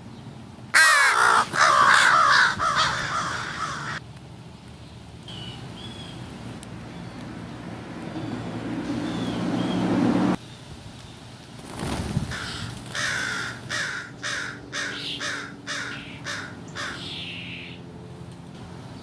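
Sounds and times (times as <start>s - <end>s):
crow cawing: 0.8s - 4.0s, 12.3s - 17.8s
rising noise with low hum: 1.1s - 11.0s.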